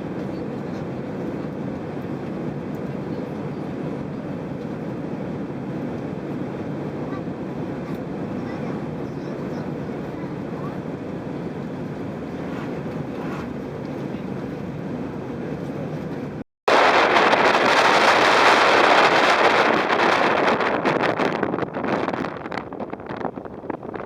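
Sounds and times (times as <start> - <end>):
steady low rumble: 0.0 - 24.0
wind noise on microphone: 16.7 - 24.0.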